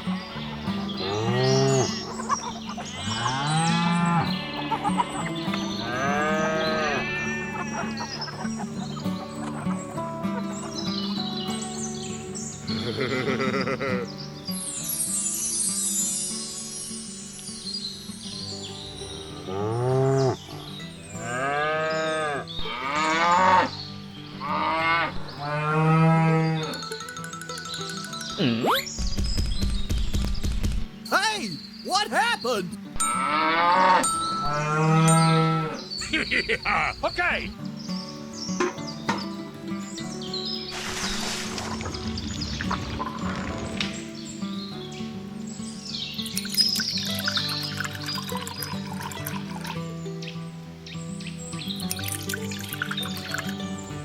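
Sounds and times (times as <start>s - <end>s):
quiet background music: 0.0s - 54.0s
cattle mooing: 33.2s - 35.8s.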